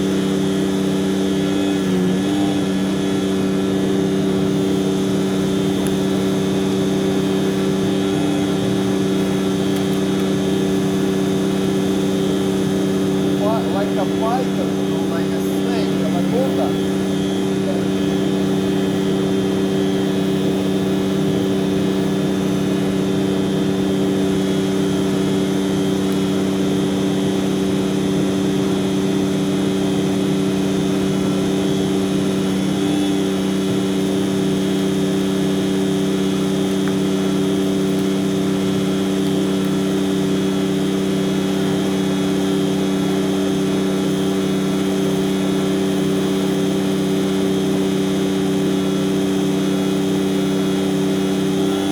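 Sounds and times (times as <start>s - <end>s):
truck machinery drone: 0.0s - 51.9s.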